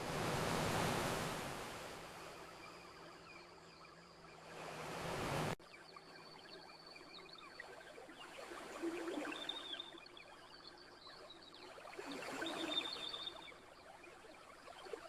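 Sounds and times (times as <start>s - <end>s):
ocean wave washing in: 0.0s - 2.6s, 4.5s - 5.6s.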